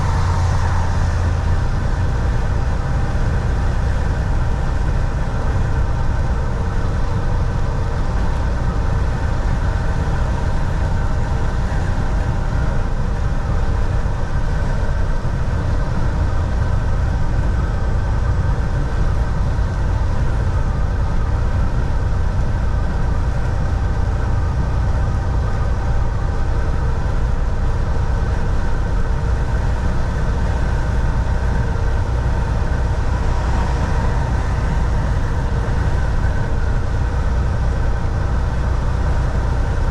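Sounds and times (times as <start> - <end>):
truck diesel engine rumble: 0.0 - 39.9.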